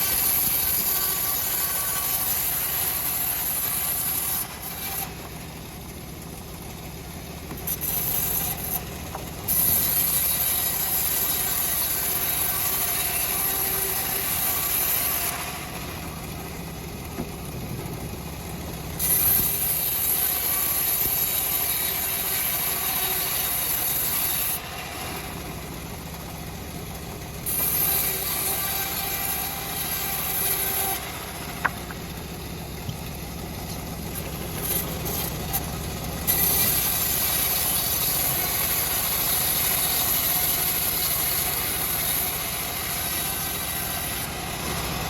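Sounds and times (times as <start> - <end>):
sawmill engine running: 0.0 - 45.0
saw blade hissing through log: 34.2 - 44.3.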